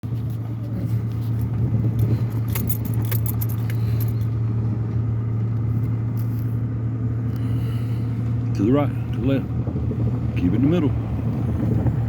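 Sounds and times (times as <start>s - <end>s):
truck engine and road drone: 0.0s - 12.0s
light jingles and clicks: 0.1s - 6.6s.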